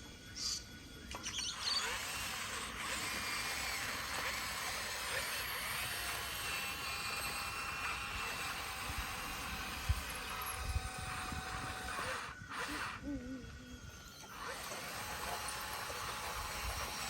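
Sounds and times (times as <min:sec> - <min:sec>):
bulldozer whine with squeals: 0:00.2 - 0:02.6.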